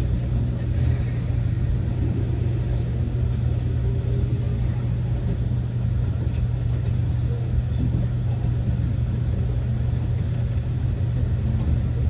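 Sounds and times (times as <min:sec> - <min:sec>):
train rumble from inside cabin: 0:00.0 - 0:12.0.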